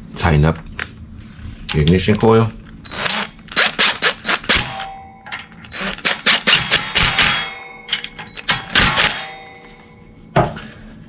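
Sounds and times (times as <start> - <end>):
metal tools clinking: 4.6 - 10.2.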